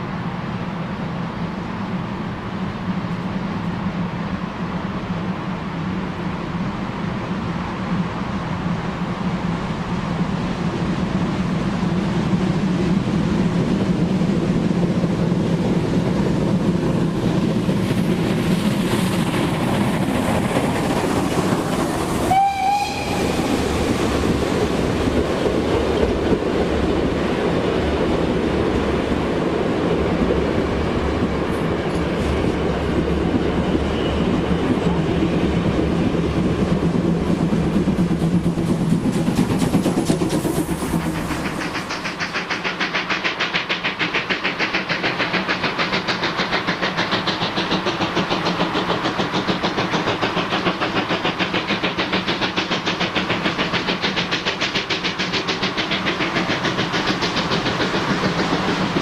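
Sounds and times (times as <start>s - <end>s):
train rumbling on rails: 0.0s - 59.0s
high-pitched train toot: 22.2s - 23.8s.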